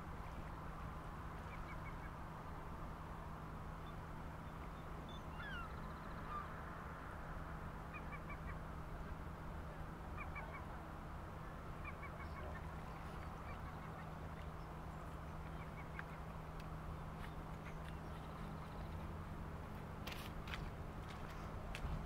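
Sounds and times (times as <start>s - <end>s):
steady low background noise: 0.0s - 22.0s
faint bird calls: 4.4s - 6.6s, 10.1s - 16.4s.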